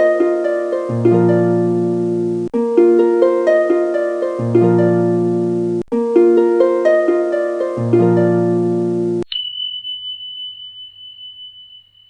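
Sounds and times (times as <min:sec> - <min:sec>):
plucked harp-like music: 0:00.0 - 0:09.2.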